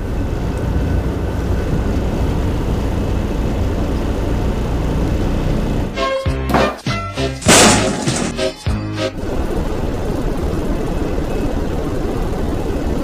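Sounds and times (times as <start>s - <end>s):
vehicle rumble inside truck cab: 0.0s - 13.0s
music: 5.9s - 9.2s.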